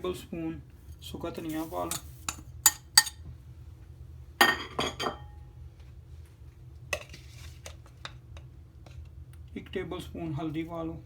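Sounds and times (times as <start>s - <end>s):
metal spoon clinking on bowl: 1.9s - 3.2s.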